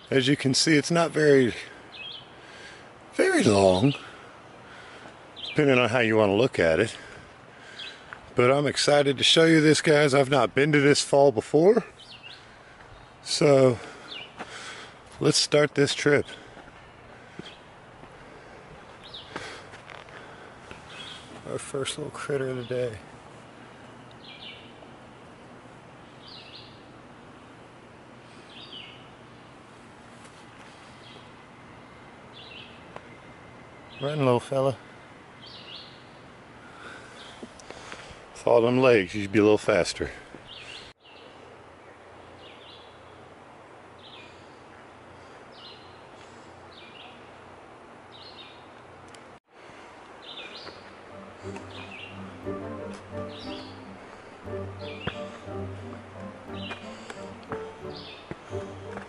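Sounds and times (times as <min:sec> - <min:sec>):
steady outdoor hiss: 0:00.0 - 0:59.0
bird chirping: 0:01.9 - 0:02.4, 0:05.3 - 0:05.9, 0:20.7 - 0:21.6, 0:23.8 - 0:24.8, 0:50.2 - 0:59.0.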